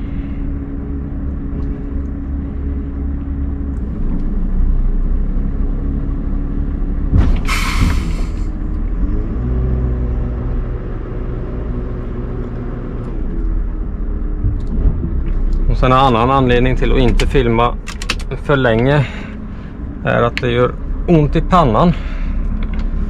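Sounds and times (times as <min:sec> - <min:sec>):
truck diesel engine running: 0:00.0 - 0:23.0
air brake click and hiss: 0:07.3 - 0:08.6.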